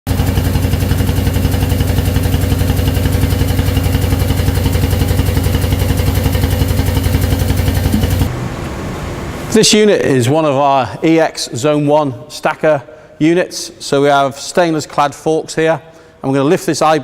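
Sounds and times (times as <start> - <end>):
machine humming with fast pulse: 0.2 - 9.7.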